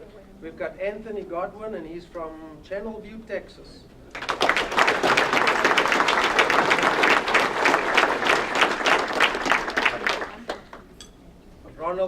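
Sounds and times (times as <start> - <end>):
group of people applauding: 4.1 - 10.9.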